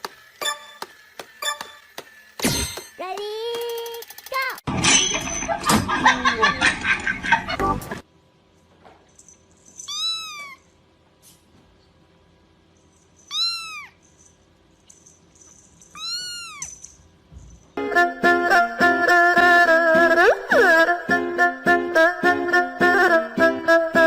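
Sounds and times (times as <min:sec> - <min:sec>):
music: 0:07.6 - 0:08.0, 0:17.8 - 0:24.0
cat meowing: 0:09.9 - 0:10.7, 0:13.3 - 0:14.0, 0:16.0 - 0:16.7.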